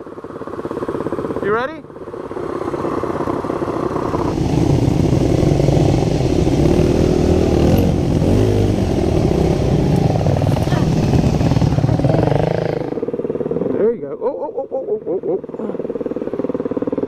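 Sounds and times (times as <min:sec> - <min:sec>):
dirt bike engine revving: 0:01.4 - 0:14.0.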